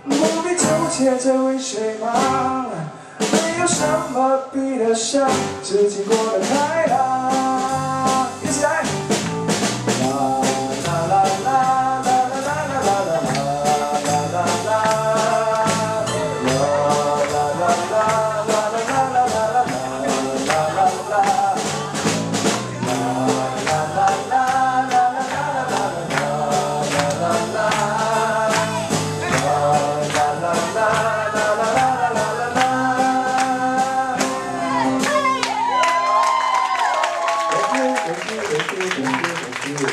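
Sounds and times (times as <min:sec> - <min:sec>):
person singing: 0:00.0 - 0:09.0, 0:09.9 - 0:36.3
strummed accompaniment: 0:05.3 - 0:35.8.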